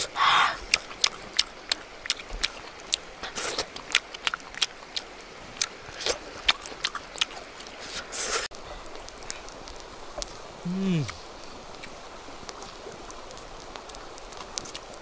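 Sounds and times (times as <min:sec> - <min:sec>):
person chewing food: 0:00.6 - 0:08.4, 0:10.2 - 0:11.2.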